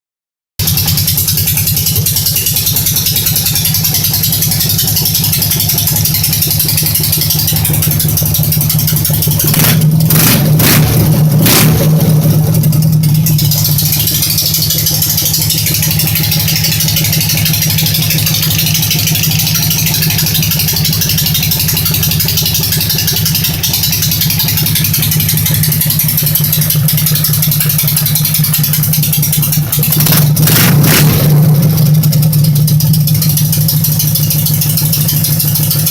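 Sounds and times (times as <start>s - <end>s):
motorcycle engine idling and revving: 0.6s - 35.9s.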